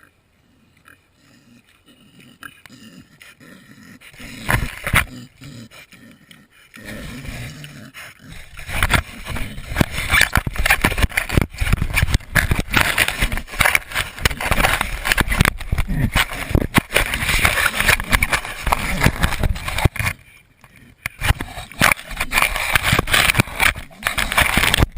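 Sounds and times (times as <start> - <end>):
pig snuffling: 0.4 - 24.9
camera scraping and knocking: 4.1 - 5.2, 8.2 - 24.9.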